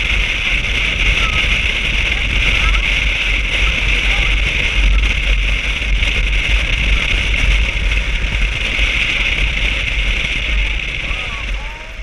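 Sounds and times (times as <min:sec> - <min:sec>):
vehicle running low rumble: 0:00.0 - 0:12.0
wind on microphone: 0:00.0 - 0:12.0.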